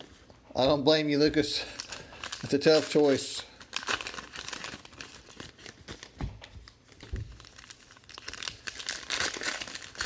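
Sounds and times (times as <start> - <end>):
foil wrappers crinkling: 1.4 - 10.0.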